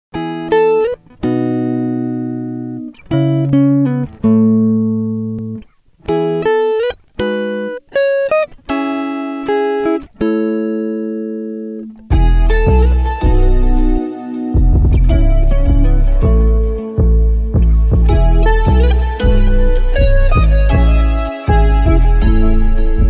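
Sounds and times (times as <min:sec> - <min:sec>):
chords struck and ringing: 0:11.5 - 0:23.0
deep bass music passage: 0:12.1 - 0:23.0.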